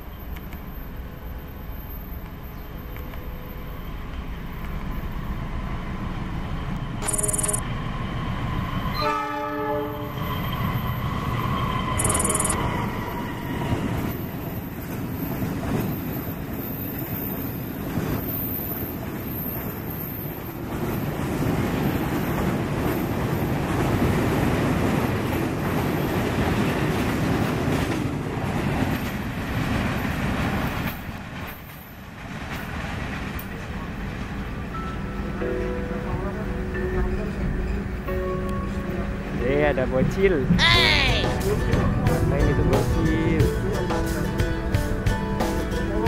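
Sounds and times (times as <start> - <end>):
locomotive horn blast: 9.0 - 10.2.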